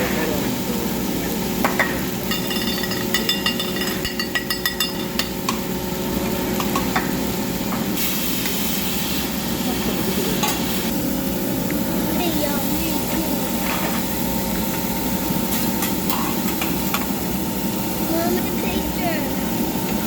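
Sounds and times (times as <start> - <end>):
grill sizzling: 0.0 - 20.0
metal utensils clinking: 2.2 - 5.4.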